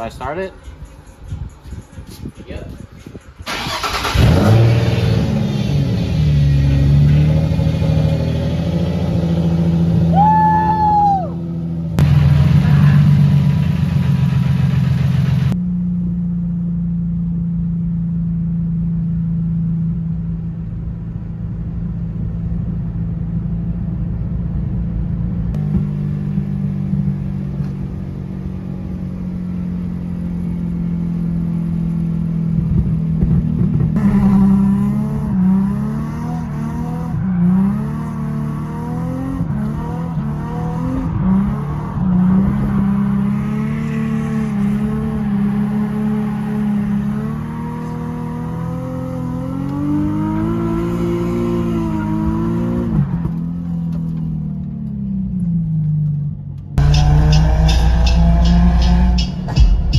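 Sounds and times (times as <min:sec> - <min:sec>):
car engine idling: 0:03.4 - 0:10.2, 0:11.0 - 0:34.0, 0:56.4 - 0:59.9
engine revving in short blips: 0:03.5 - 0:08.5, 0:56.8 - 0:59.9.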